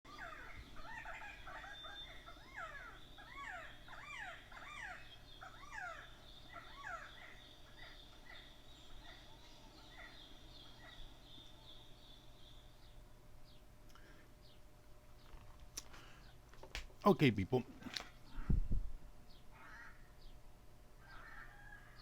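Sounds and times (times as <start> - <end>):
overlapping bird calls: 0.1 - 18.6.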